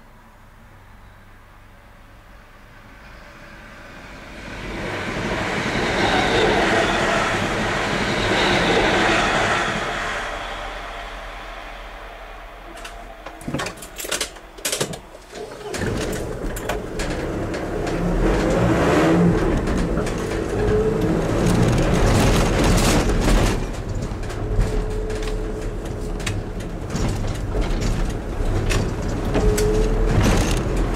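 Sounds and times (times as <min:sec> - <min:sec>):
clicks and knocks: 0:12.7 - 0:30.9
vehicle engine accelerating: 0:16.0 - 0:24.4.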